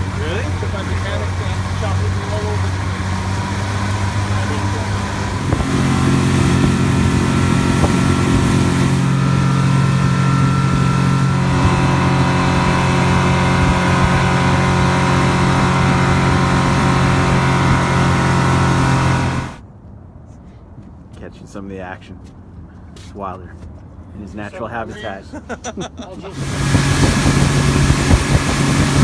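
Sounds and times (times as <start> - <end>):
rush of wind and water: 0.0 - 19.0, 26.4 - 29.0
motorboat engine running: 0.0 - 19.6, 26.3 - 29.0.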